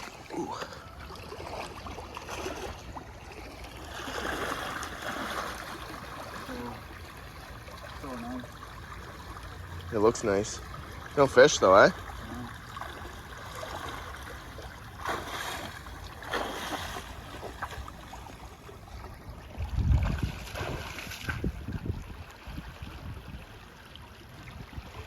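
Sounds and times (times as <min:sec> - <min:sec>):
creek water rushing: 0:00.0 - 0:23.1
wind buffeting microphone: 0:18.9 - 0:23.6.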